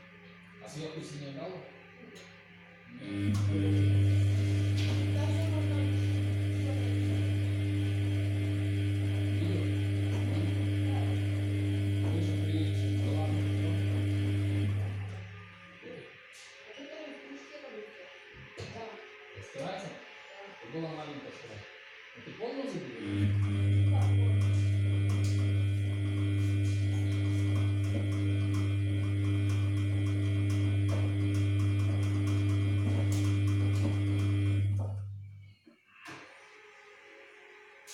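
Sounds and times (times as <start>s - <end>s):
low electrical hum: 0.0s - 15.6s, 23.0s - 35.6s.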